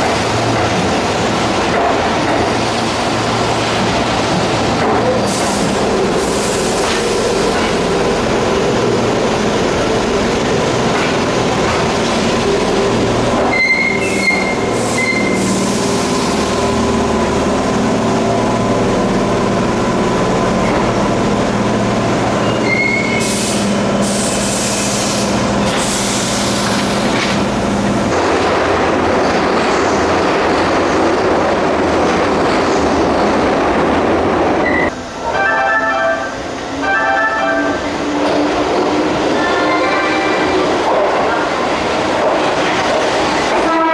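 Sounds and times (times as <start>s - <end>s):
train motors humming: 0.0s - 43.9s
wheel squeals: 13.4s - 15.6s, 22.4s - 23.3s
pitched signal tone: 34.6s - 38.0s.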